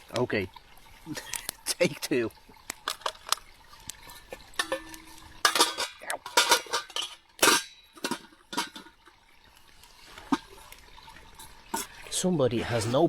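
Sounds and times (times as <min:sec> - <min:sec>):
metal utensil scraping cookware: 0:04.1 - 0:09.1, 0:11.4 - 0:12.1.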